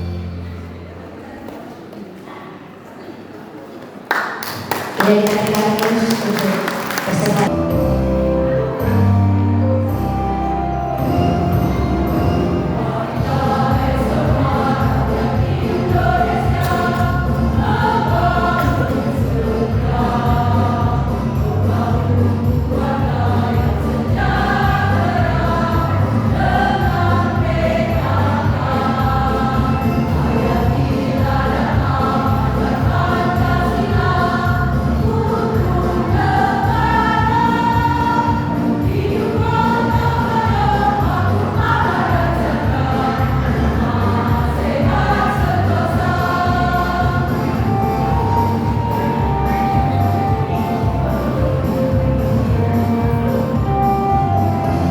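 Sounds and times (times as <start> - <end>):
musical accompaniment: 5.5 - 54.9
choir singing in parts: 11.2 - 54.9.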